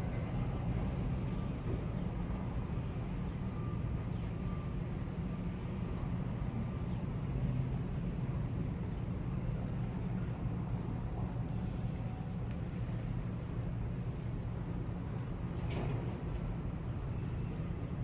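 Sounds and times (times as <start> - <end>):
ship engine low rumble: 0.0 - 18.0.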